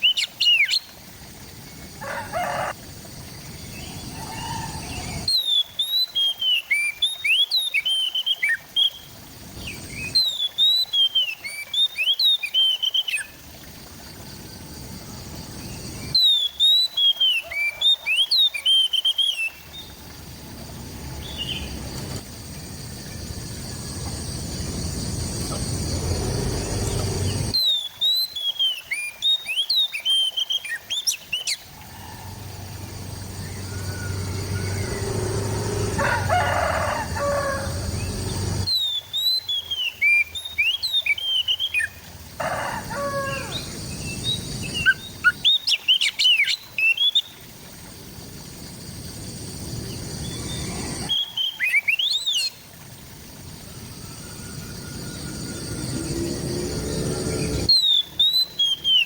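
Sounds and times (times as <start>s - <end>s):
bird singing whistled phrases: 3.9s - 9.0s, 16.1s - 19.6s, 27.5s - 31.6s, 38.7s - 41.9s, 50.4s - 52.5s, 57.7s - 59.0s
background hiss: 19.0s - 27.7s, 41.6s - 59.0s.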